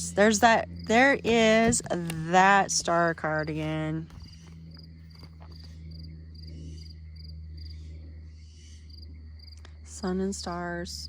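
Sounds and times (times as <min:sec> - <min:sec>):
crickets chirping: 0:00.0 - 0:11.0
steady low hum: 0:00.0 - 0:11.0.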